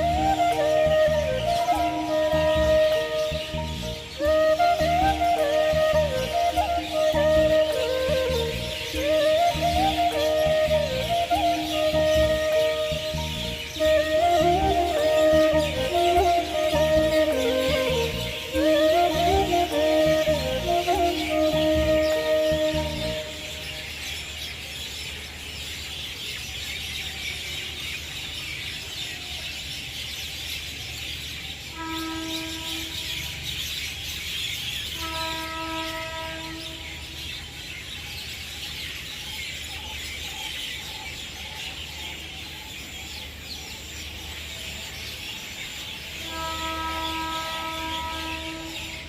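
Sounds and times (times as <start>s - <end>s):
long held musical notes: 0.0s - 24.0s
birds chirping: 0.0s - 49.0s.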